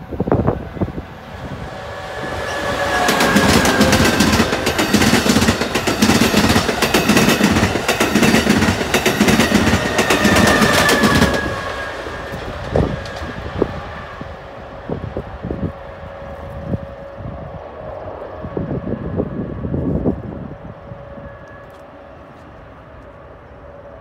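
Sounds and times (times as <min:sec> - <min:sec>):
train wheel clatter: 0:02.2 - 0:13.8.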